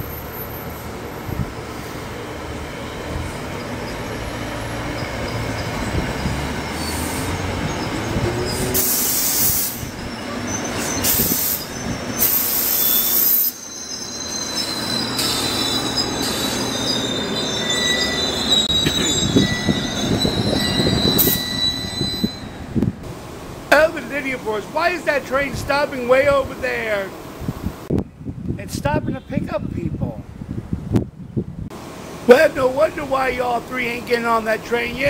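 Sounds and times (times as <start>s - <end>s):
train wheels rumbling on rail: 0.0s - 28.0s
high-pitched wheel squeals: 2.8s - 22.9s.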